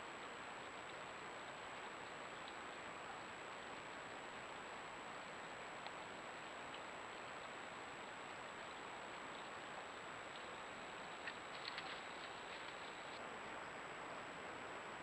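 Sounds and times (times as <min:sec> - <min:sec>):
microphone hiss: 0:00.0 - 0:15.0
faint tick: 0:05.8 - 0:06.0.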